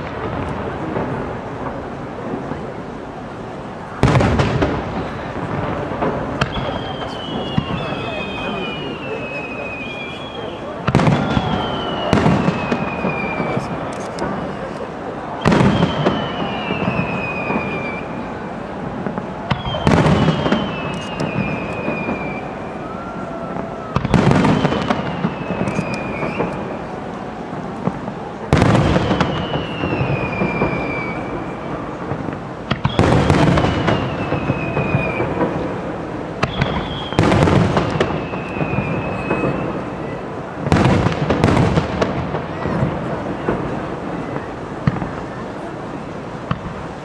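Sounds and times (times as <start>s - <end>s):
loud firework burst: 0.0s - 47.0s
long falling whistle: 6.6s - 13.7s, 15.4s - 18.3s, 19.5s - 26.7s, 29.0s - 31.7s, 32.9s - 35.4s, 36.5s - 40.2s
fireworks shells crackling: 19.0s - 22.6s, 24.0s - 27.0s.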